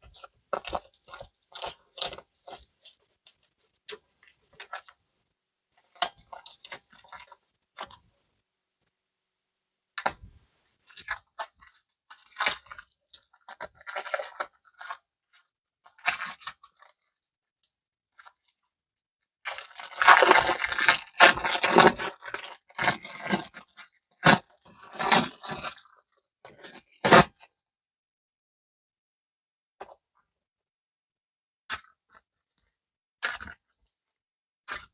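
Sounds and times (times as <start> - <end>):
packaging crinkling and tearing: 19.5 - 23.7
sharp crackles of packaging: 19.5 - 24.4.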